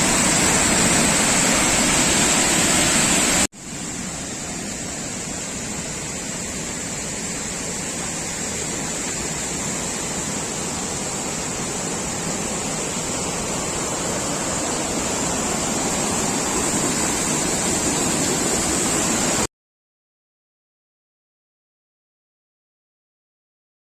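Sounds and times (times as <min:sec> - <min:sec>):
heavy rain pouring: 0:00.0 - 0:03.5, 0:07.6 - 0:19.5.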